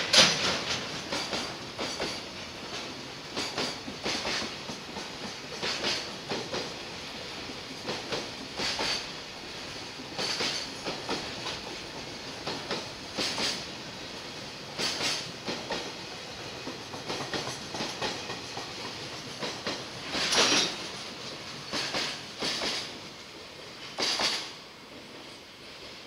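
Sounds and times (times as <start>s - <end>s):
wheels clattering on track: 0.0s - 6.8s, 10.0s - 13.7s, 14.8s - 23.0s
freight train rolling noise: 0.0s - 26.0s.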